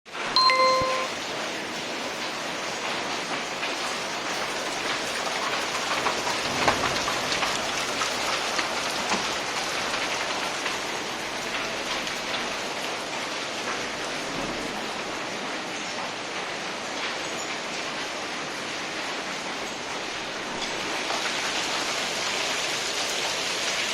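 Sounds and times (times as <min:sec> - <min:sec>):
heavy rain falling: 0:00.1 - 0:23.9.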